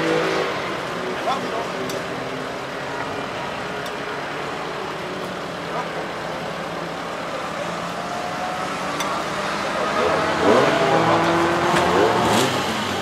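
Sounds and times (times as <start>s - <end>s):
car engine revving: 7.9s - 13.0s.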